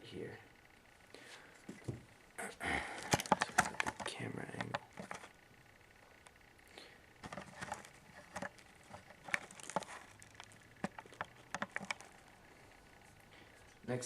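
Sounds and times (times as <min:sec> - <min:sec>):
hands handling hard objects: 0:02.9 - 0:05.3, 0:07.2 - 0:13.8.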